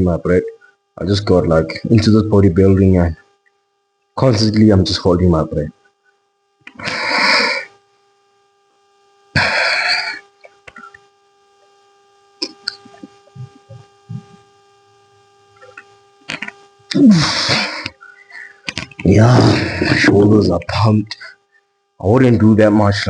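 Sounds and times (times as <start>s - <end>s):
faint steady hum: 0.0s - 23.0s
man breathing hard: 6.8s - 7.7s
short vocal sound: 15.6s - 20.4s.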